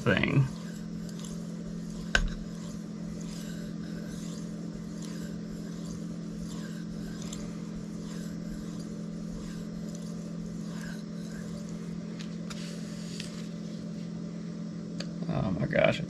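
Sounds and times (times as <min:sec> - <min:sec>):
knife blade swishing on whetstone: 0:00.0 - 0:13.8
low hum: 0:00.0 - 0:15.8.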